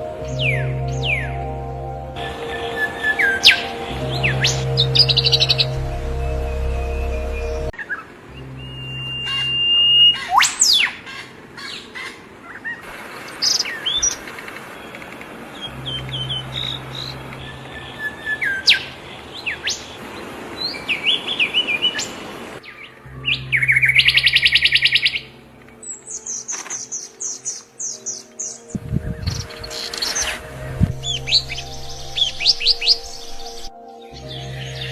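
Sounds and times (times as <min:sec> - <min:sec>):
songbirds chirping and singing: 0:00.0 - 0:34.9
bird trilling rapidly: 0:08.8 - 0:12.8.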